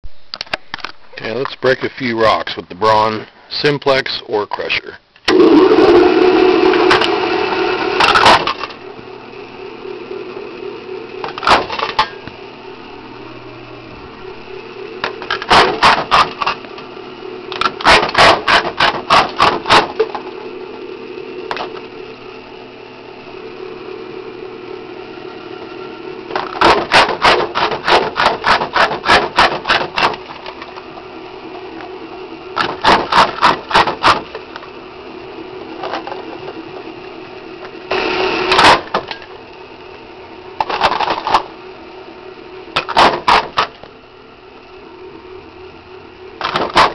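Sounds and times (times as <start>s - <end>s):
electric motor humming: 5.3s - 46.9s
jaw crusher cracking rock: 15.0s - 16.6s, 17.5s - 20.2s, 26.3s - 30.7s, 32.6s - 34.4s, 42.8s - 43.9s, 46.4s - 46.9s.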